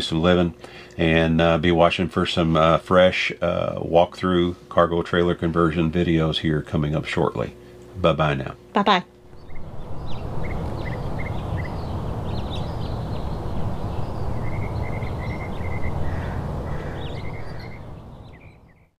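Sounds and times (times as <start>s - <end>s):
steady low rushing noise: 9.2s - 18.7s
small birds chirping: 9.2s - 19.0s.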